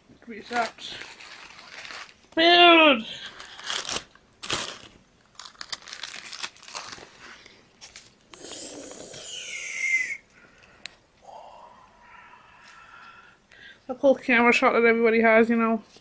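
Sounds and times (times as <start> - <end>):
food wrapping crinkling: 0.3 - 8.4
wrapping tearing: 0.4 - 8.2.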